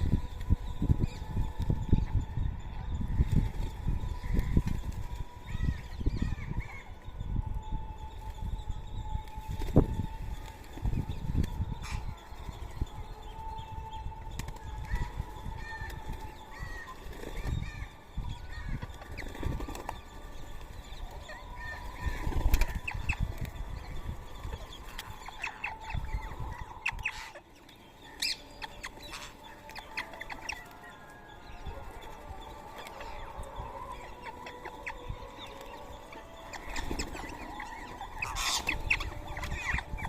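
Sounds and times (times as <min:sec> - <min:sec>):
wings flapping: 0:14.3 - 0:27.4, 0:31.6 - 0:40.0
parakeets chirping and squawking: 0:14.6 - 0:40.0.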